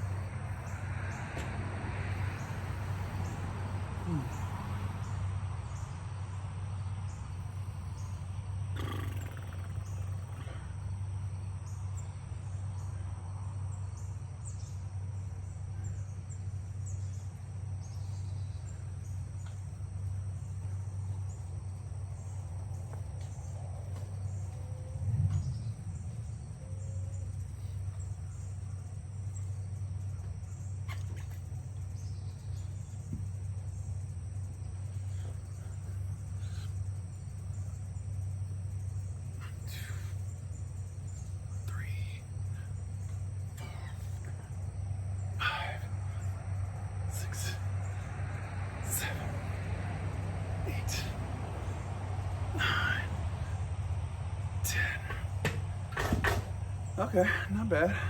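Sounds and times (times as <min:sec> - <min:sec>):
low hum: 0:09.7 - 0:58.0
dull thump: 0:55.2 - 0:56.6.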